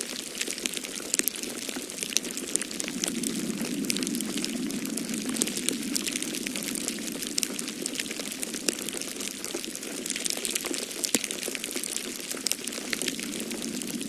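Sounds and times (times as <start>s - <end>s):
wood fire crackling and popping: 0.0s - 14.0s
storm wind rushing: 2.0s - 10.3s, 12.4s - 14.0s.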